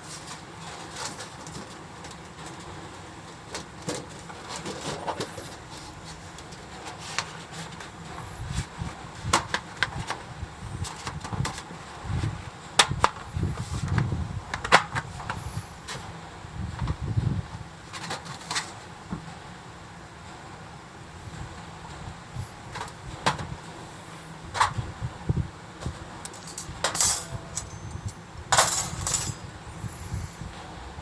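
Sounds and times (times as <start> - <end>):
low rumbling background: 20.8 - 31.0.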